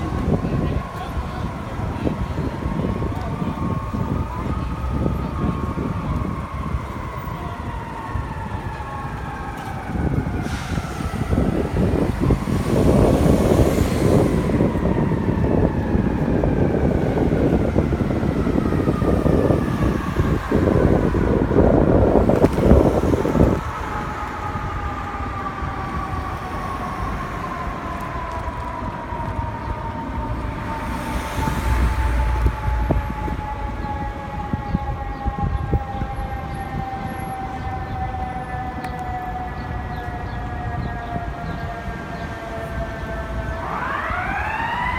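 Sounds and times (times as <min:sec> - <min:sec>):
siren: 0:00.0 - 0:44.9
street noise: 0:00.0 - 0:44.9
passing train rumble: 0:07.7 - 0:39.5.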